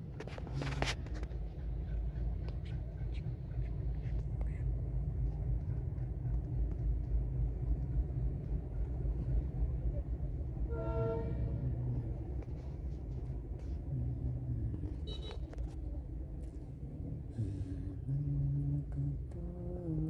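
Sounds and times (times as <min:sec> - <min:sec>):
train rumbling past: 0:01.1 - 0:15.1
horn toot: 0:10.7 - 0:11.8.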